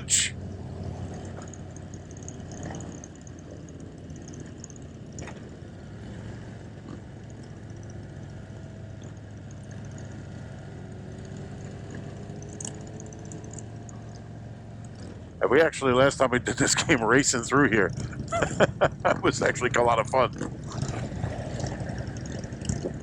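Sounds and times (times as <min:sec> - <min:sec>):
motorcycle engine running: 0:00.4 - 0:23.0.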